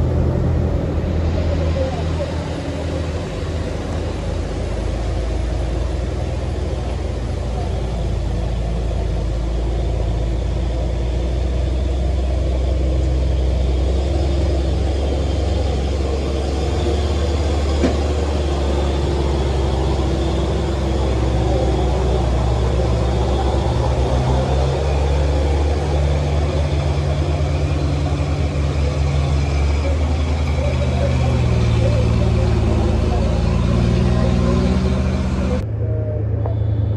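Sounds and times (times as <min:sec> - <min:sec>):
truck diesel engine droning: 0:00.0 - 0:36.9.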